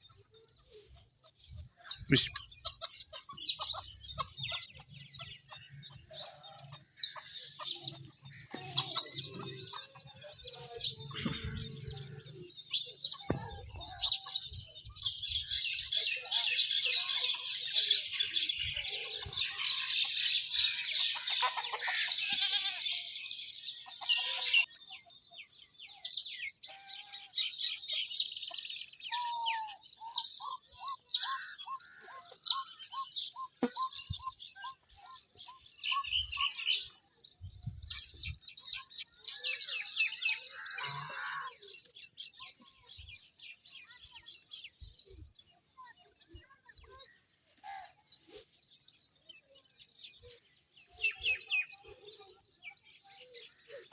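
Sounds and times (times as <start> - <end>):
birds chirping: 0.0 - 53.9
poultry clucking: 0.1 - 13.6, 18.8 - 23.0, 23.8 - 24.7.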